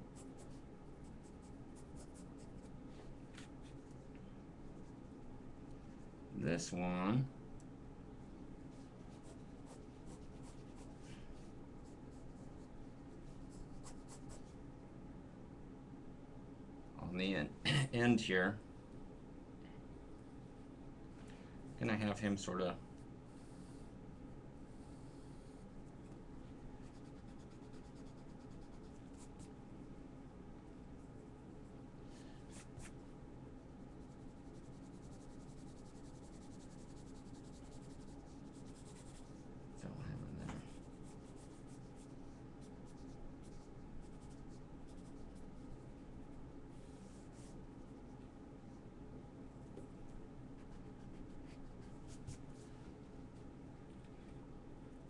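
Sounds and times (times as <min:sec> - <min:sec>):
low room hum: 0:00.0 - 0:55.0
pencil scratching drawing strokes: 0:08.7 - 0:11.1, 0:26.8 - 0:29.5, 0:34.0 - 0:39.4.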